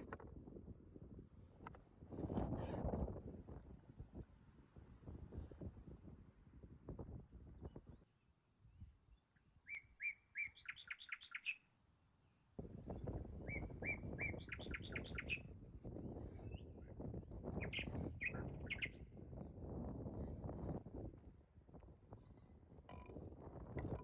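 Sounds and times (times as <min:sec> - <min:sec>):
songbird singing: 0:07.6 - 0:19.4.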